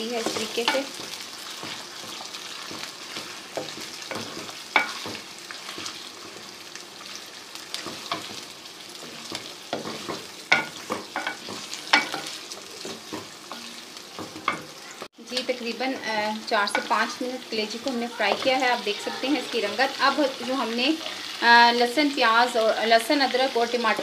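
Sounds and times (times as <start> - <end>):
liver and onions sizzling: 0.0 - 24.0
spoon knocking against a pan: 9.3 - 14.8.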